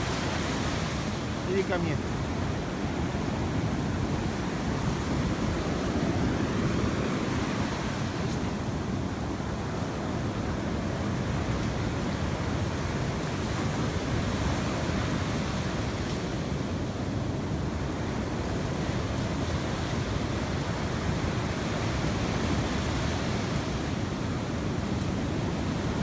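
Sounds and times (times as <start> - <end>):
sea surf washing onto beach: 0.0 - 26.0.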